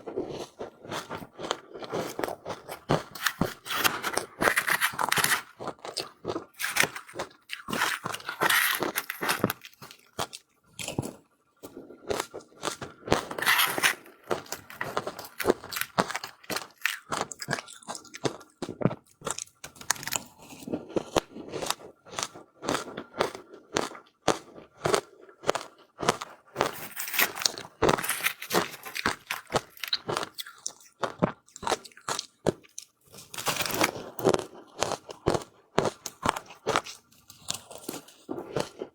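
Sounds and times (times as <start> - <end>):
crunching and chewing ice: 0.0 - 38.9.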